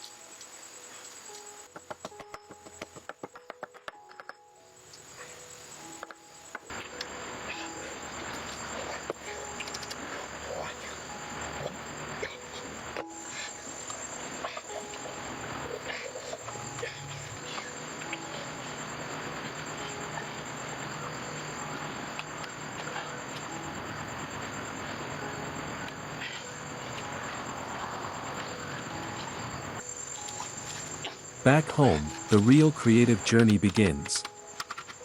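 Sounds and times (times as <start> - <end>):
crickets trilling: 0.0 - 35.0
constant rustling: 5.0 - 31.4.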